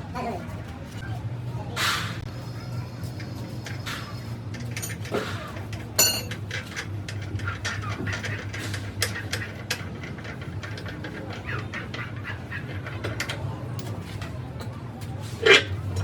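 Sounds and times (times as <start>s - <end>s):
metal hand tools clinking: 6.0s - 6.7s.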